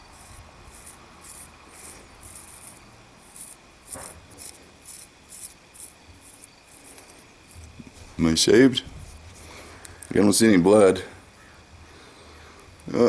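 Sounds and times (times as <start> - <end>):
razor scraping stubble: 0.0 - 8.1.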